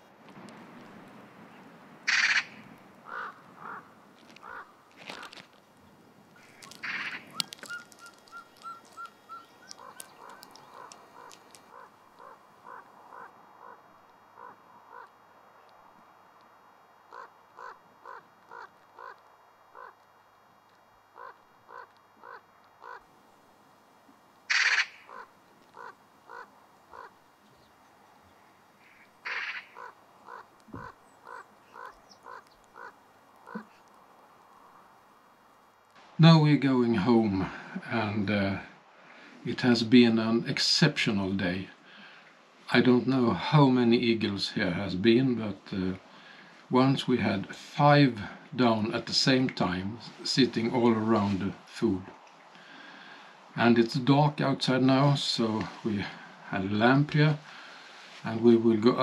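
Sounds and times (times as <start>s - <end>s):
birds calling: 1.4s - 15.9s, 17.0s - 20.1s, 21.0s - 23.2s, 24.4s - 36.2s
harsh bird calls: 1.5s - 5.4s, 6.4s - 15.2s, 17.1s - 20.0s, 21.2s - 23.1s, 24.5s - 34.0s.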